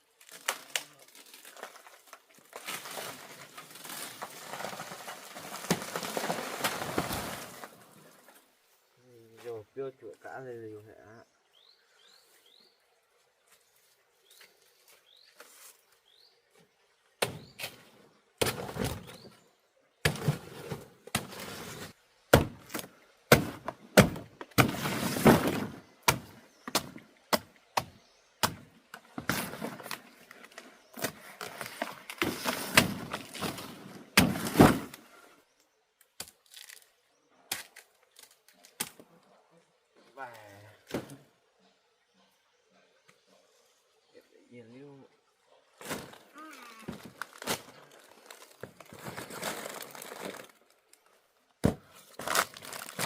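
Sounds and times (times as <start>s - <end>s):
rustling and crackling: 0.2s - 8.5s.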